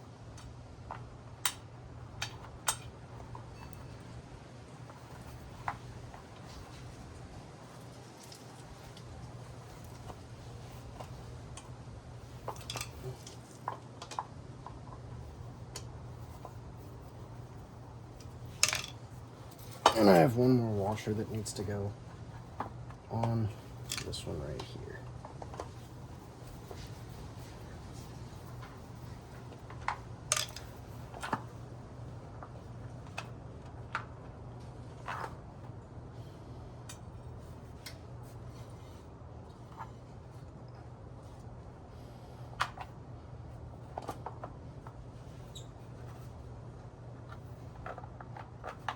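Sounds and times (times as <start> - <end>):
steady low hum: 0.0 - 48.9
metal washers and bolts clicking: 0.4 - 4.1, 12.3 - 14.2, 18.1 - 20.2, 23.7 - 24.3, 29.8 - 31.4.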